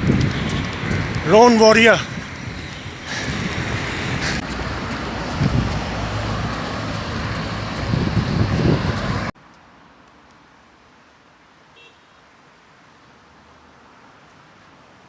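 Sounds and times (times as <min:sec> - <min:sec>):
wind buffeting microphone: 0:00.0 - 0:09.3
road traffic: 0:00.0 - 0:15.0.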